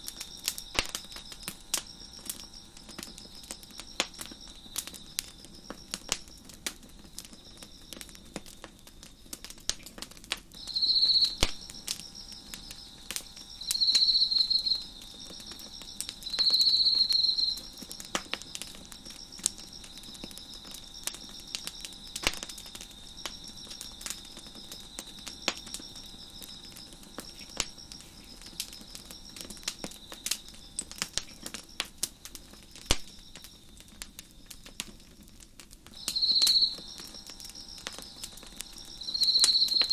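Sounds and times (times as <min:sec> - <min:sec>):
crickets chirping: 0:00.0 - 0:39.9
wood fire crackling and popping: 0:00.0 - 0:39.9.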